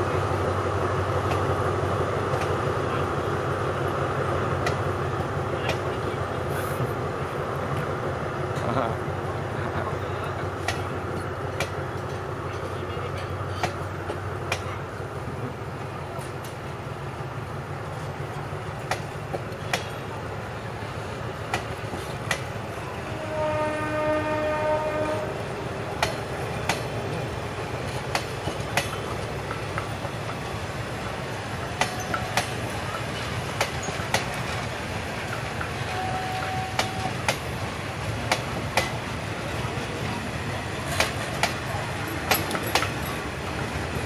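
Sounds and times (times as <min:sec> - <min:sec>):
train rumbling: 0:00.0 - 0:44.0
wheels clacking over rail joints: 0:17.9 - 0:23.4, 0:24.7 - 0:44.0
train horn: 0:22.9 - 0:25.5, 0:35.9 - 0:37.1.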